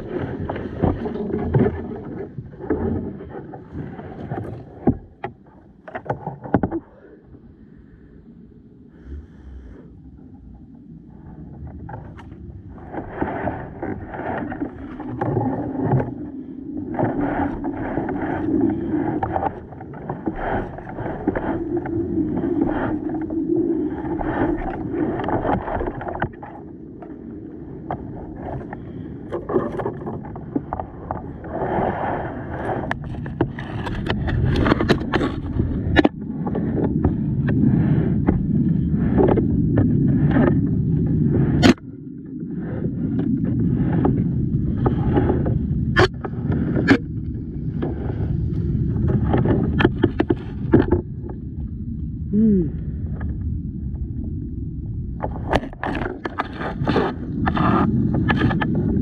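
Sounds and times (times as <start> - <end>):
water washing against hull: 0.0 - 59.0
knocks and scraping: 32.8 - 37.6, 48.9 - 51.4, 55.2 - 59.0
paddle splashing in water: 55.2 - 59.0.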